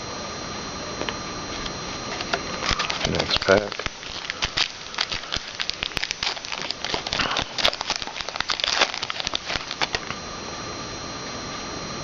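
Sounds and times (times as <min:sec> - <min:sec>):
wrapper crinkling: 0:02.1 - 0:10.2.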